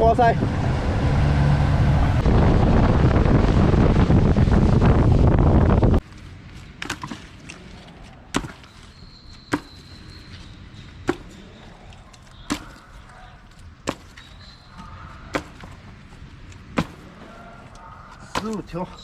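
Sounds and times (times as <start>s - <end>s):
wind and boat noise: 0.0s - 9.6s
sharp knocks: 11.1s - 11.4s.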